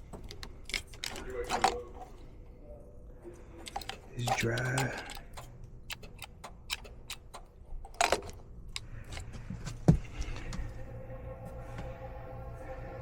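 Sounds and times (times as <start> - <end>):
multi-tone hum: 0.0 - 13.0.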